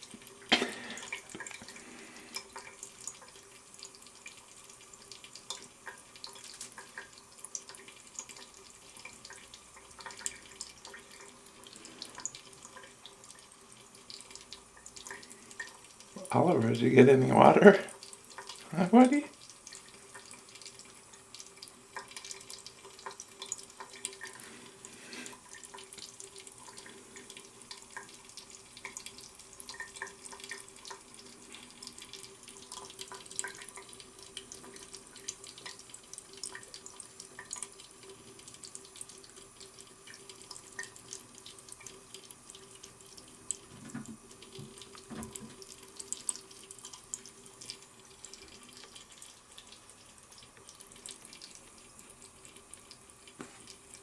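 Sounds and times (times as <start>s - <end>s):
faint steady hum: 0.0s - 54.0s
water running from a tap: 0.0s - 54.0s
water splatters and drips: 0.0s - 54.0s.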